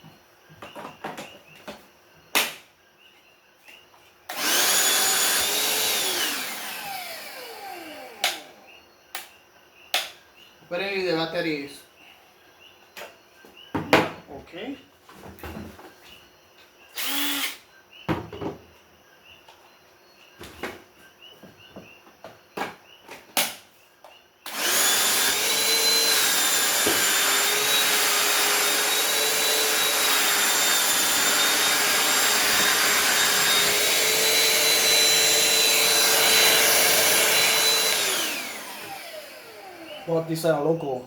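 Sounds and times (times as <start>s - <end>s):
cordless vacuum motor whining: 4.3s - 8.6s, 24.5s - 40.3s.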